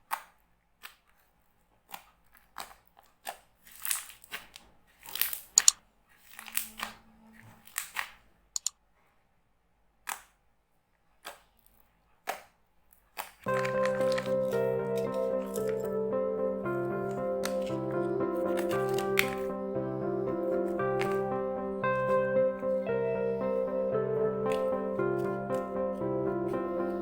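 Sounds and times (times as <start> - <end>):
music: 13.5 - 27.0.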